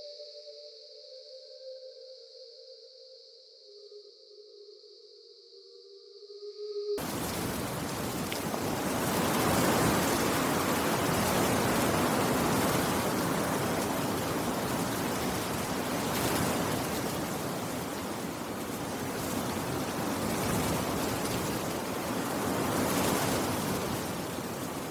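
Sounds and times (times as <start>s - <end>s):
steady rain falling: 7.0s - 24.9s.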